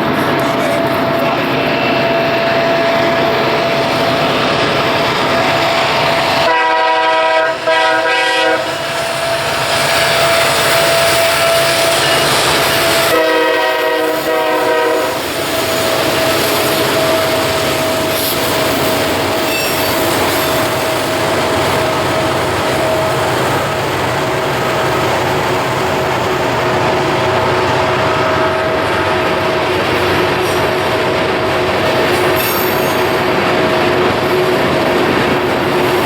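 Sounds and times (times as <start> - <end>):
train rumbling past: 0.0 - 36.0
locomotive air horn: 6.4 - 18.4, 28.0 - 29.2
train wheels squealing: 8.7 - 13.2, 15.1 - 24.0, 32.0 - 33.4.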